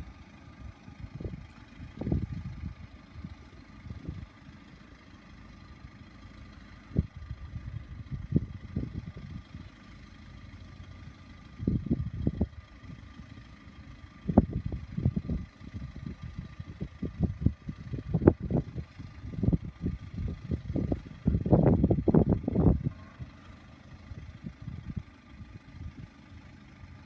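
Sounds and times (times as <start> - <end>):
wind buffeting microphone: 1.0 - 4.3, 6.9 - 9.6, 11.5 - 13.0, 14.2 - 23.4, 24.1 - 26.1.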